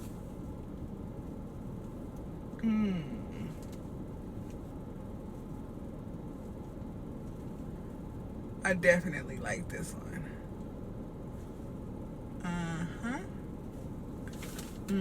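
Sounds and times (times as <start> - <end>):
low rumble inside car: 0.0 - 15.0
person humming: 2.6 - 3.5.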